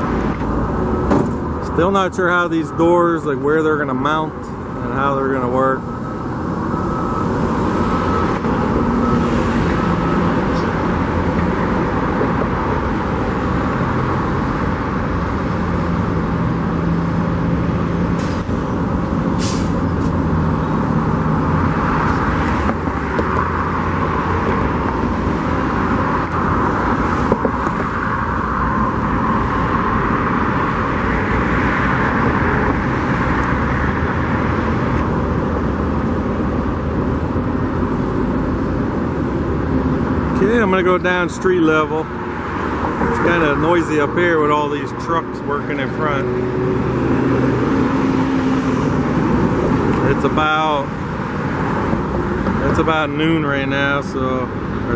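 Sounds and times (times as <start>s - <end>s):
diesel engines running: 0.0s - 54.9s
hiss of air: 19.4s - 20.1s.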